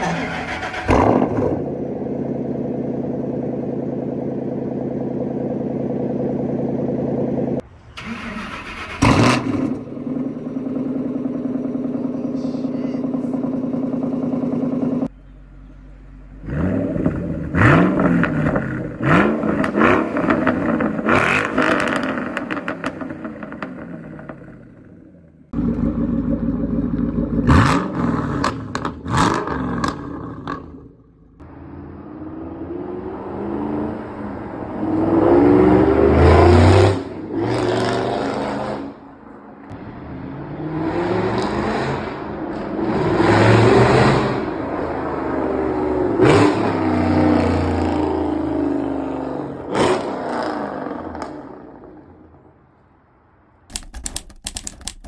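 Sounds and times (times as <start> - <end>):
exhaust cracks: 0.0 - 15.1, 15.7 - 31.5, 41.4 - 53.0
car engine revving: 0.0 - 52.6
quick clicks: 53.7 - 55.0.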